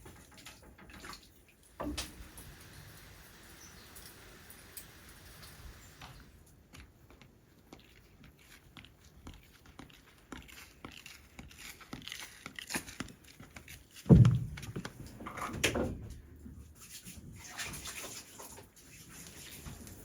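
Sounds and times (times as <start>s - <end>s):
small knocks and rustling: 0.0s - 2.3s, 3.6s - 20.0s
loud deep thump: 14.1s - 14.8s.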